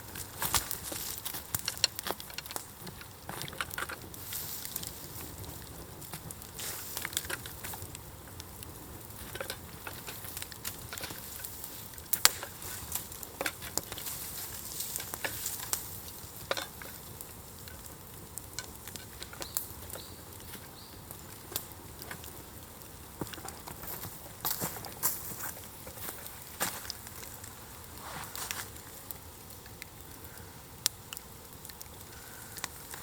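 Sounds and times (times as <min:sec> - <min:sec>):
bonfire crackling and sizzling: 0:00.0 - 0:33.0
sharp pops from fire: 0:00.0 - 0:33.0.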